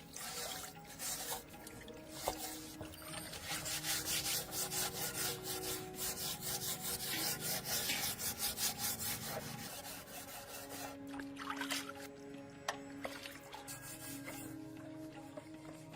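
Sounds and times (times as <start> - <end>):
hand tool rubbing strokes: 0.0 - 11.0, 13.6 - 14.6.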